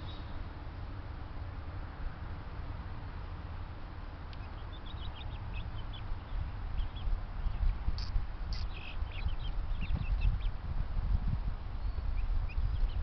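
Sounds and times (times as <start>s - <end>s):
birds chirping: 0.0s - 0.4s, 4.3s - 10.6s, 11.7s - 13.0s
steady low rumble: 0.0s - 13.0s.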